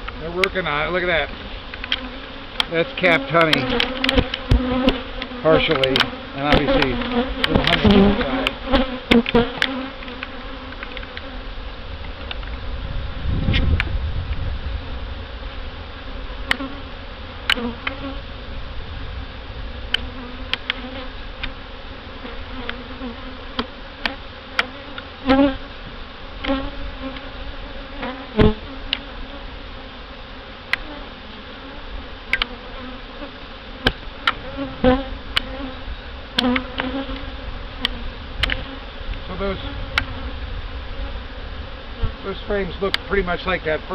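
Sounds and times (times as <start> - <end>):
honey bees buzzing: 0.0 - 43.9
sharp clicks and knocks: 3.4 - 11.3, 37.8 - 38.7.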